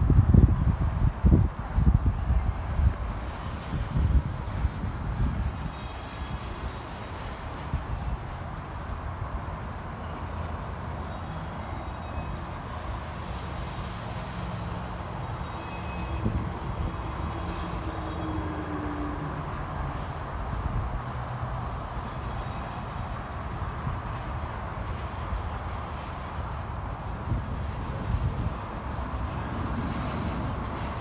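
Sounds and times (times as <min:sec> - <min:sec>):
train wheels rumbling on rail: 0:00.0 - 0:31.0
high-pitched wheel squeal: 0:05.4 - 0:07.6, 0:11.0 - 0:12.8, 0:15.2 - 0:18.8, 0:21.7 - 0:23.4.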